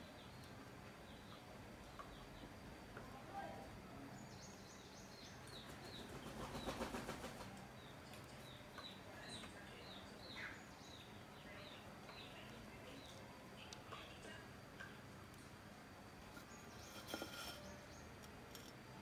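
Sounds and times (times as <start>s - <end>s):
small birds chirping: 0.0s - 18.7s.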